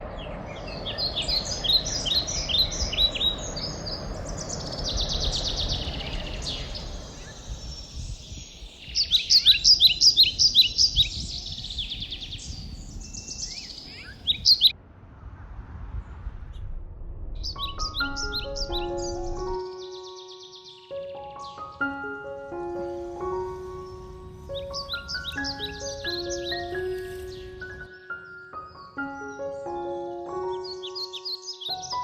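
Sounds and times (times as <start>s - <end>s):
low outdoor rumble: 0.0s - 8.8s, 11.1s - 19.6s
songbirds chirping and trilling: 0.0s - 14.8s, 17.4s - 32.0s.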